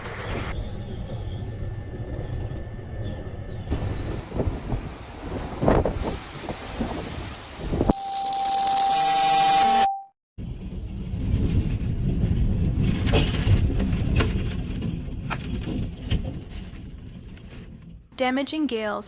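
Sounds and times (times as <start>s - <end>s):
storm wind buffeting microphone: 0.0s - 7.9s, 10.4s - 18.1s
steady beeping tone: 7.9s - 10.1s.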